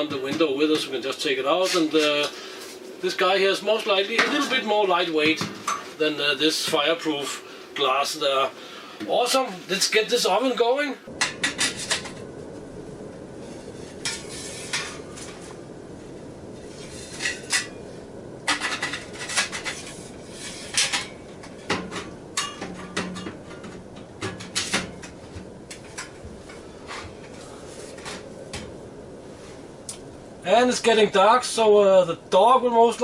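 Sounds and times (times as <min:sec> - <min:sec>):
metal stove parts clinking: 0:18.4 - 0:26.2.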